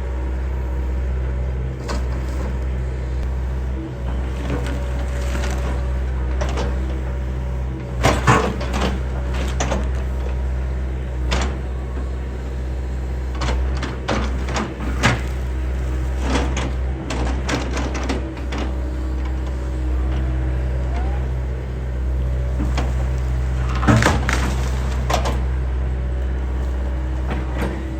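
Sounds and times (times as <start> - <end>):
excavator diesel engine running: 0.0 - 27.9
timber cracking and splintering: 23.6 - 25.2.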